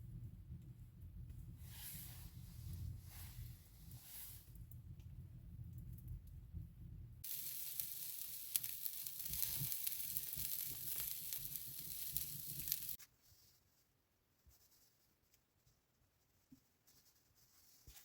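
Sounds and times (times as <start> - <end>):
sizzling hiss with crackles: 1.5 - 4.8, 7.2 - 13.0.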